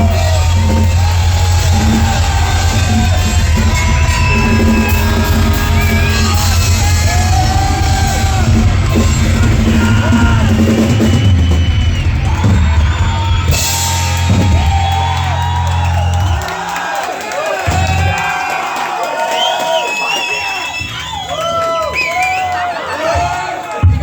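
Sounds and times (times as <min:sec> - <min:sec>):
amplified instruments with heavy bass: 0:00.0 - 0:16.6
drum kit: 0:00.0 - 0:18.9.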